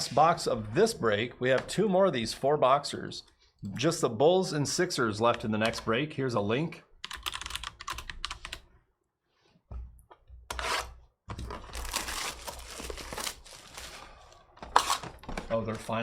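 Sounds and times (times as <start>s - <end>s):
plastic wrapping tearing and crinkling: 11.4s - 15.2s.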